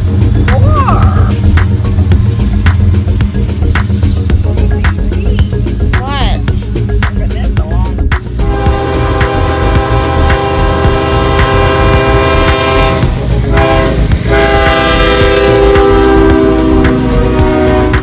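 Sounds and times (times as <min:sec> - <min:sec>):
low rumble of moving train: 0:00.0 - 0:18.0
locomotive air horn blasts: 0:08.4 - 0:18.0.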